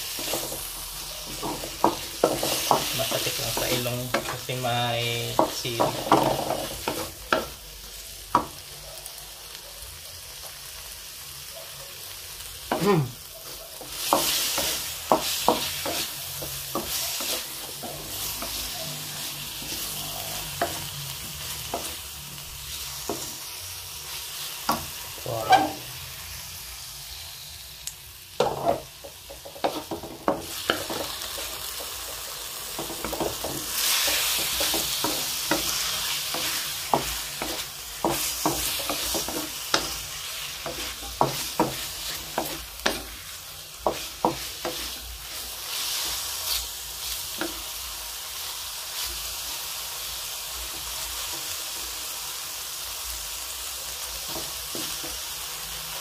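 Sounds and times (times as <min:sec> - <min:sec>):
wooden spatula scraping a pan: 0:00.0 - 0:04.4, 0:13.9 - 0:22.0, 0:24.1 - 0:26.0, 0:28.4 - 0:47.7
chicken livers sizzling in a wok: 0:00.0 - 0:56.0.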